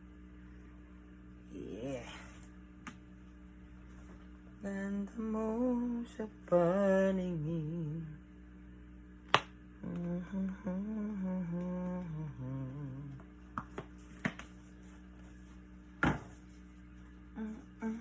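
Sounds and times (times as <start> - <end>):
person humming: 4.6 - 8.2, 9.8 - 13.3, 17.3 - 18.0.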